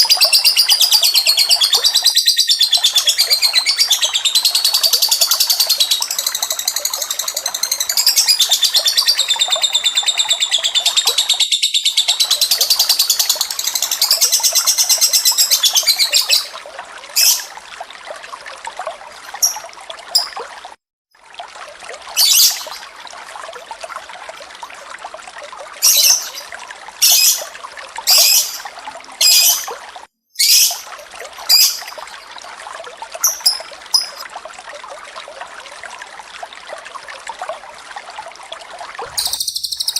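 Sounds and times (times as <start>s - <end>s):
running water: 0.0s - 39.9s
short high bird chirps: 30.4s - 30.8s, 33.3s - 34.2s, 39.1s - 39.9s
birds chattering rapidly: 39.1s - 39.9s.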